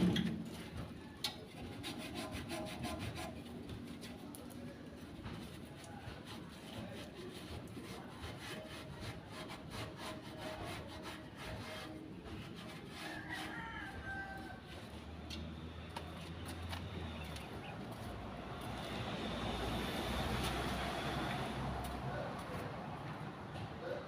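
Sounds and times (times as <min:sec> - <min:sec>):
rapid scraping strokes: 0:01.5 - 0:04.2, 0:05.4 - 0:13.6.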